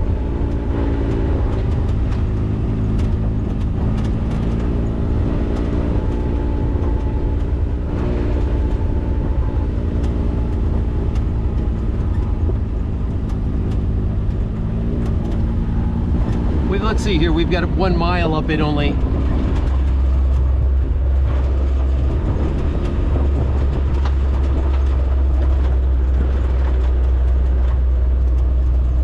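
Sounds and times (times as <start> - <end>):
light ticks and rattles: 0.0 - 29.0
off-road vehicle engine running: 0.0 - 29.0.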